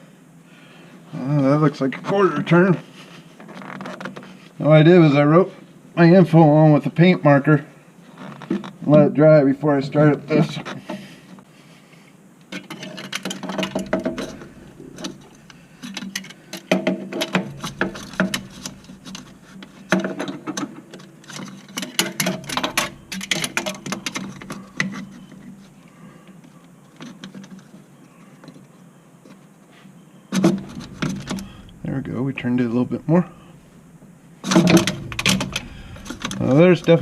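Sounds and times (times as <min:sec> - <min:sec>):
hands and rag twisting filter: 0:12.6 - 0:25.8, 0:30.4 - 0:33.7, 0:34.4 - 0:37.0.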